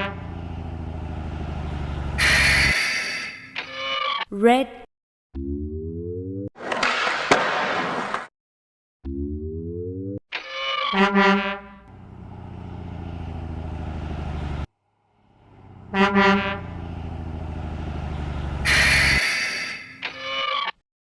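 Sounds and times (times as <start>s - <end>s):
truck horn honking: 0.0s - 0.5s, 2.0s - 3.4s, 11.0s - 12.1s, 15.4s - 19.8s
truck engine chugging: 0.0s - 3.1s, 11.9s - 19.4s.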